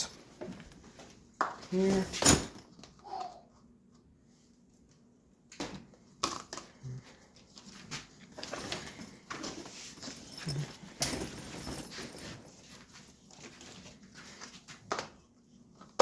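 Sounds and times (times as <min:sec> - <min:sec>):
rustling and clattering: 0:07.4 - 0:14.9.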